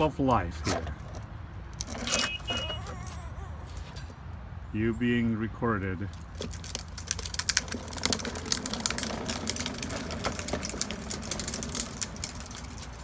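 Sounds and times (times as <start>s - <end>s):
toy car wheels clicking and rattling: 0.7s - 4.2s, 6.1s - 13.0s.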